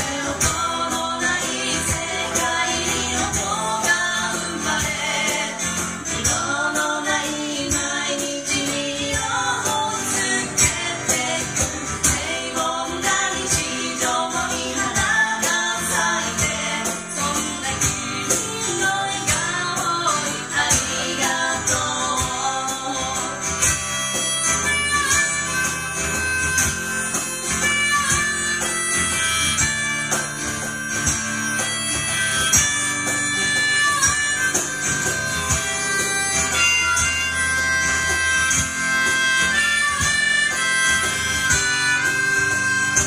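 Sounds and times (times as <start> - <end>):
person singing: 0.0 - 25.6
acoustic guitar: 0.0 - 43.0
harmonica-like held notes: 0.0 - 43.0
tambourine-like percussion: 0.0 - 43.0.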